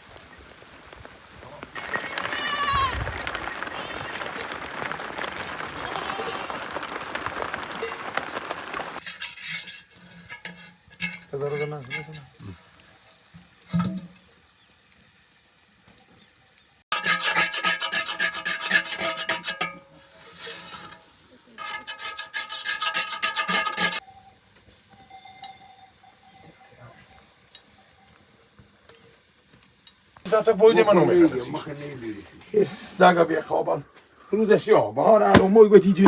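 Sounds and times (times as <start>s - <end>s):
rain-like hiss: 0.0s - 17.0s, 19.4s - 36.0s
rasping scraping strokes: 9.0s - 12.5s, 16.9s - 24.0s.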